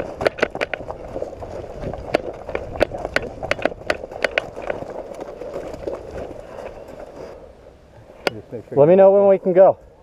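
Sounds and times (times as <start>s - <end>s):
running footsteps on rough ground: 0.0s - 7.6s.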